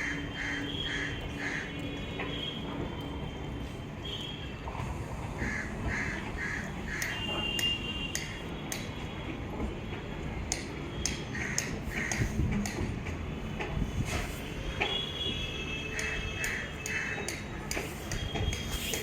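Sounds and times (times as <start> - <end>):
crow cawing: 0.0 - 1.8, 5.4 - 7.2, 11.3 - 12.3.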